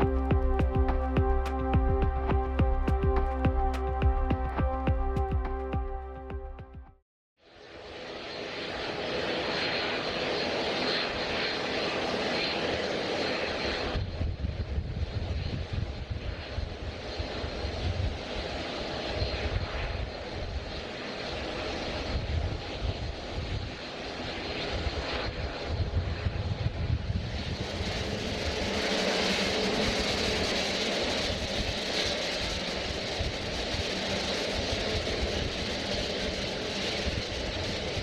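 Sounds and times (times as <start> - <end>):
jet engine whine: 0.0 - 6.4, 7.4 - 38.0
jet engine rumble: 7.9 - 38.0.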